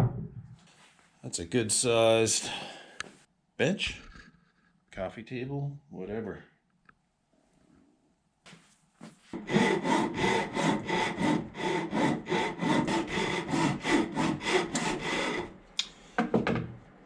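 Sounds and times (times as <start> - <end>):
hand saw cutting wood: 9.4 - 15.5.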